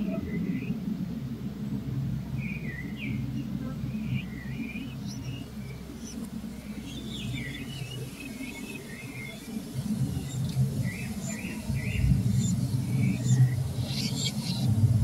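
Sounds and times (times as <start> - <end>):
steady low rumble: 0.0 - 15.0
small birds chirping: 2.4 - 15.0.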